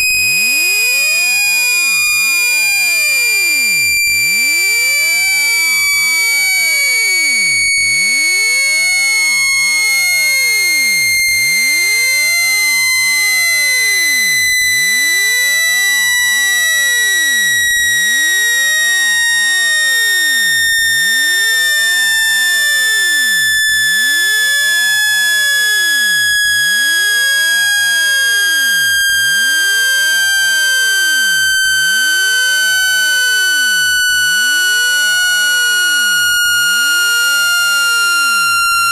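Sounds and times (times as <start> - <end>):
electronic tone gliding downward: 27.4 - 38.9.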